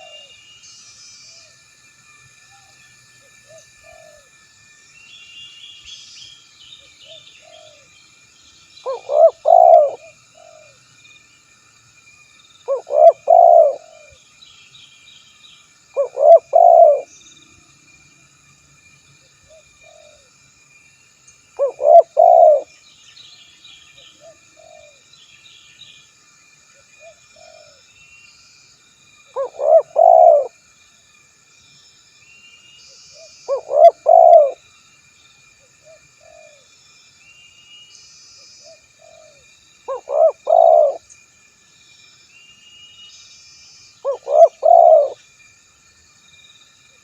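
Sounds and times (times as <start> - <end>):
faint high chirping: 0.0 - 30.6, 31.8 - 41.3, 41.9 - 47.0
high insect-like tone: 0.0 - 47.0
dove cooing: 3.5 - 4.2, 8.9 - 10.8, 12.7 - 14.2, 16.0 - 17.1, 21.6 - 22.7, 24.2 - 25.0, 29.4 - 30.6, 33.5 - 34.6, 39.0 - 41.0, 44.0 - 45.2.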